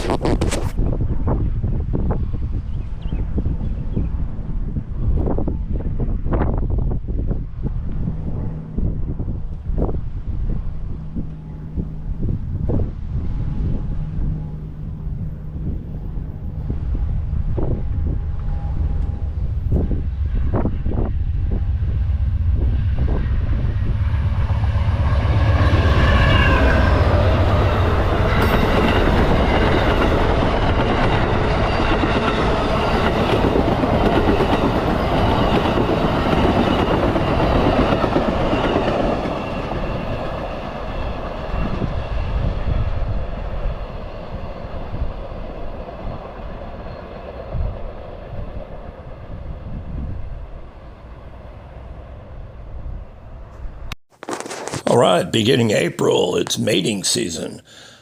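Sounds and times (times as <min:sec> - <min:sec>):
train wheels clicking on rails: 0:27.2 - 0:40.4.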